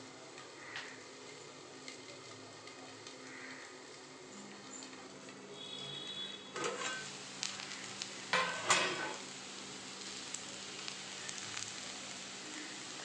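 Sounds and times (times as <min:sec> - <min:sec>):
banana slices sizzling in oil: 0:00.0 - 0:13.0
metal lid clattering: 0:06.6 - 0:07.1, 0:08.4 - 0:09.2
spatula stirring in pan: 0:06.6 - 0:09.3.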